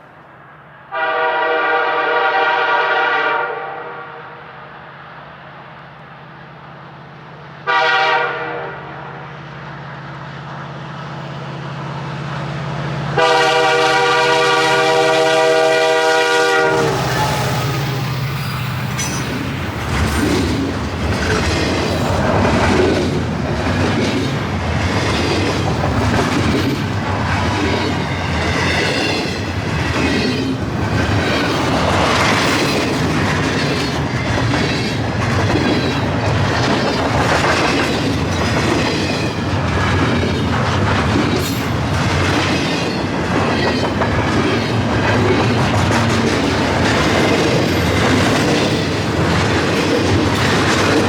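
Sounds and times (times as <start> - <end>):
freight train rumbling past: 0.0 - 51.0
faint wheel squeal: 17.0 - 19.4
wheels clacking over rail joints: 17.0 - 51.0.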